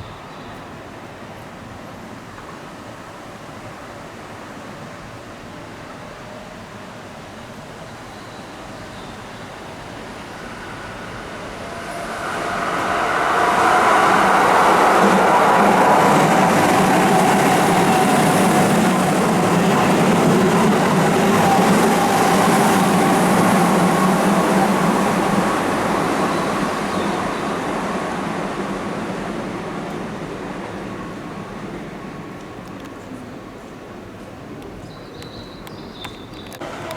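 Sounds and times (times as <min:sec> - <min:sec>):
train whine: 0:07.2 - 0:34.5, 0:36.6 - 0:36.9
electric train rumbling: 0:07.2 - 0:35.0, 0:36.5 - 0:36.9.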